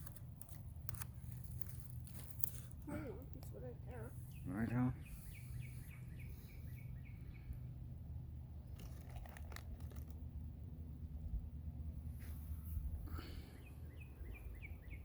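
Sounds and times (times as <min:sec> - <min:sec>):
low steady rumble: 0:00.0 - 0:15.0
bird chirping: 0:04.2 - 0:07.8, 0:13.3 - 0:15.0.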